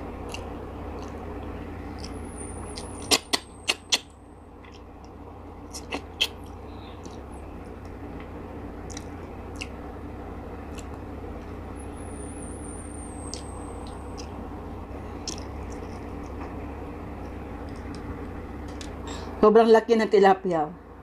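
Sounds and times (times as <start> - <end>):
steady low hum: 0.0 - 21.0
person chewing with mouth clicks: 0.2 - 2.2, 8.8 - 9.8, 10.7 - 11.0, 15.2 - 16.4.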